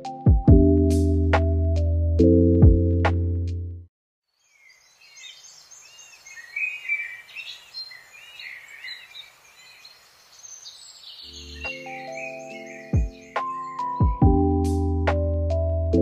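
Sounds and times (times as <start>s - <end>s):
music: 0.0s - 3.9s, 11.4s - 16.0s
small birds chirping: 4.3s - 14.3s.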